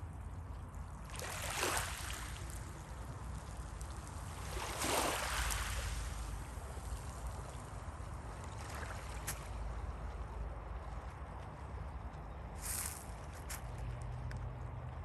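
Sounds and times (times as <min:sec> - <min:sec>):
sea waves washing in: 0:04.0 - 0:07.0.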